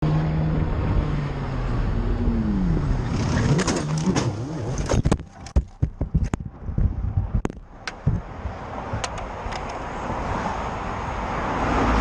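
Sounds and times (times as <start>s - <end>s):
wind noise: 0.4s - 12.0s
sharp knocks: 4.9s - 6.6s.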